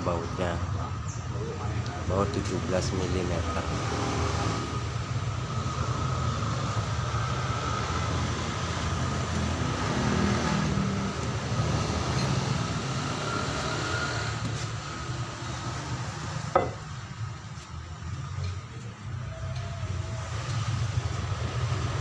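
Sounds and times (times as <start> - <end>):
motor vehicle rumble: 0.0 - 22.0
sharp metallic knock: 16.6 - 16.9.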